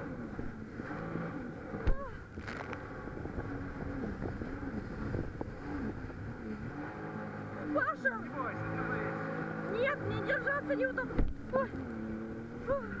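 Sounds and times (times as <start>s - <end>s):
jet ski engine: 0.0s - 13.0s
wind on microphone: 1.7s - 6.8s.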